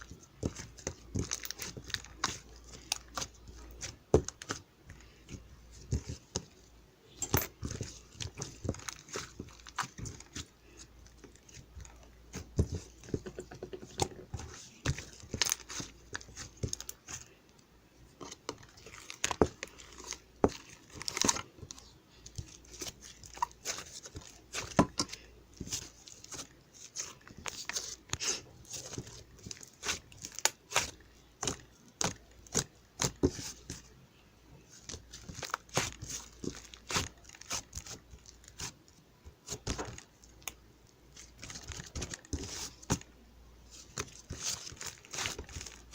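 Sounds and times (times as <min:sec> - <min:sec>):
crinkling and tearing crackles: 0:00.0 - 0:06.7, 0:07.6 - 0:33.9, 0:34.6 - 0:45.9.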